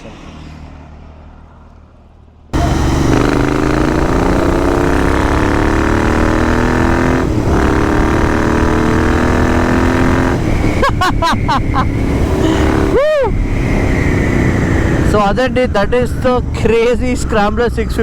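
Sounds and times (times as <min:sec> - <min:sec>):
motorcycle engine running: 0:02.6 - 0:15.1.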